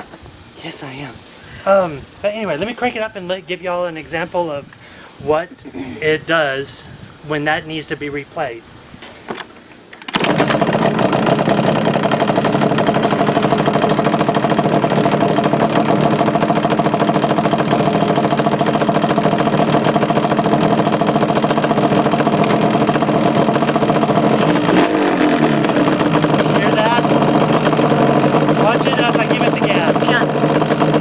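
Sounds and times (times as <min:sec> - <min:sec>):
two-stroke engine idling: 0:10.2 - 0:31.0.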